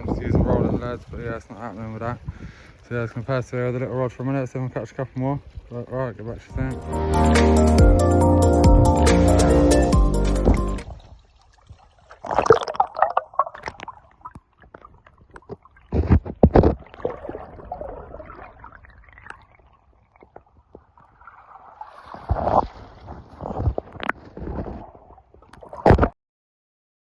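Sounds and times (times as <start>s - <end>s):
water sloshing and gurgling: 10.1s - 26.1s.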